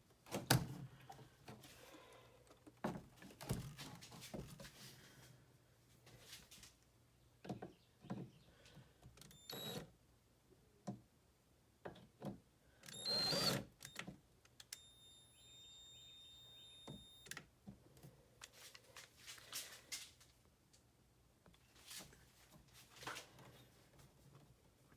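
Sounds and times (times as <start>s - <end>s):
thin high tone: 14.8s - 17.3s.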